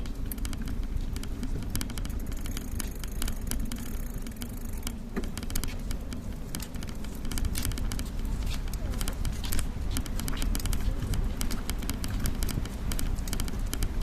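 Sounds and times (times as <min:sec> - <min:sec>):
bicycle riding rumble: 0:00.0 - 0:14.0
sharp clicks and rattles: 0:00.0 - 0:14.0
wind: 0:00.0 - 0:14.0.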